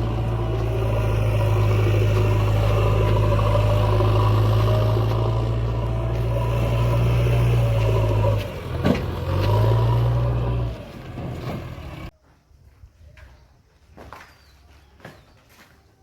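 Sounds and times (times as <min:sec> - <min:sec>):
diesel engine droning: 0:00.0 - 0:12.1.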